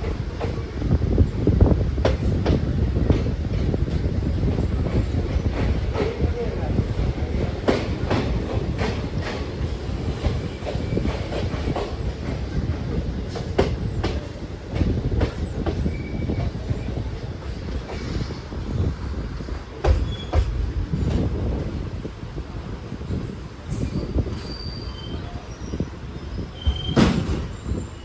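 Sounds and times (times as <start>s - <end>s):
train wheels rumbling: 0.0s - 28.0s
wheel squeals: 23.7s - 28.0s.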